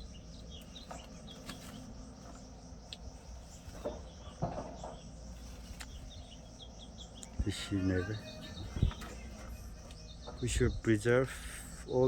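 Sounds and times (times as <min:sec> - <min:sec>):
crickets trilling: 0:00.0 - 0:12.0
faint bird chirps: 0:00.0 - 0:12.0.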